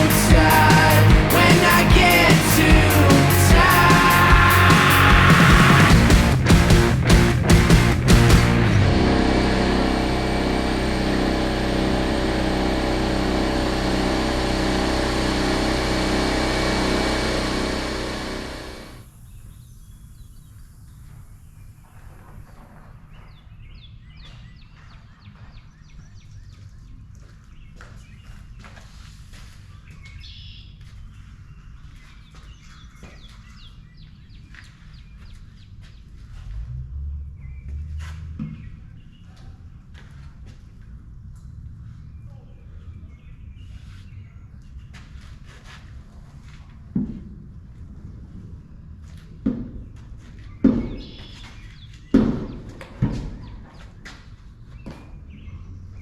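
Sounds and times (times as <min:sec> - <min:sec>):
engine idling: 0:00.0 - 0:19.0
steady low rumble: 0:00.0 - 0:19.0
small birds chirping: 0:50.5 - 0:52.6.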